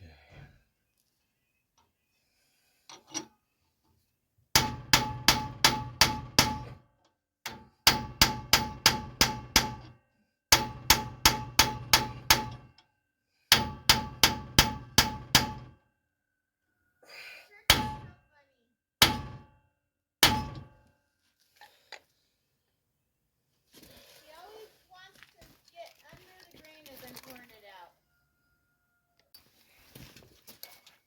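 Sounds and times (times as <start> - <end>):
hammer ringing on metal: 4.6 - 6.8, 7.9 - 9.9, 10.5 - 12.7, 13.5 - 15.8, 17.7 - 18.2, 19.0 - 19.6, 20.2 - 20.8.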